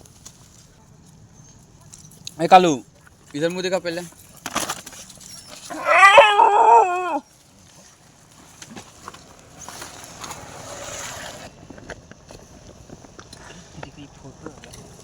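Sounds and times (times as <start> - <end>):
dog whining howl: 5.7 - 7.2.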